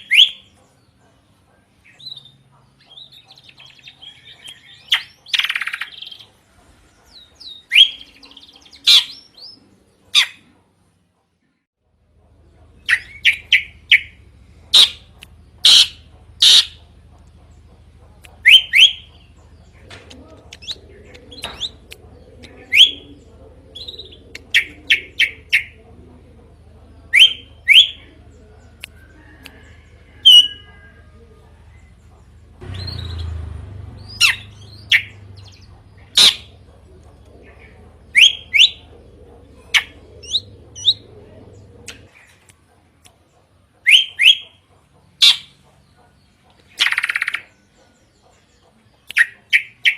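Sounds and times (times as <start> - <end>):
low steady hum: 11.9 - 43.1
bird whistled calls: 38.1 - 38.8, 43.9 - 44.5.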